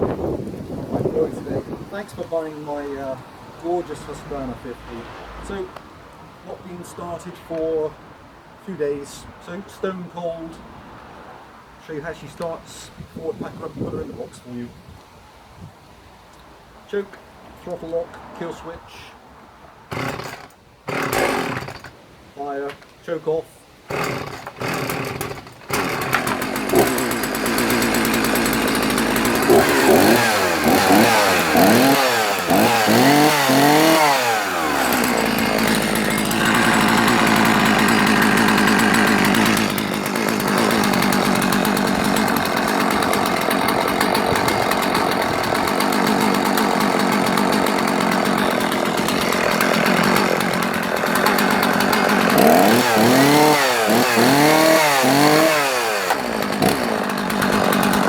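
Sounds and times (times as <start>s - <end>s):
chainsaw revving and idling: 0.7s - 5.8s, 19.9s - 22.0s, 23.9s - 58.0s.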